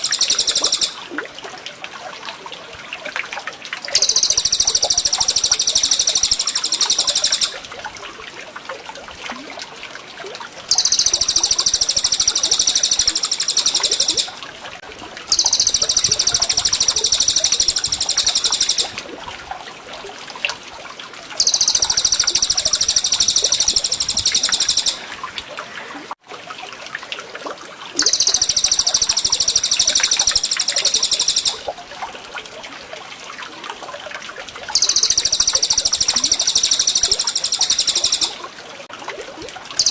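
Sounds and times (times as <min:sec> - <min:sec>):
high-pitched songbird song: 0:00.0 - 0:01.0, 0:03.9 - 0:07.6, 0:10.7 - 0:14.4, 0:15.3 - 0:19.0, 0:21.4 - 0:25.0, 0:28.0 - 0:31.7, 0:34.8 - 0:38.4
running water trickling: 0:00.0 - 0:39.9.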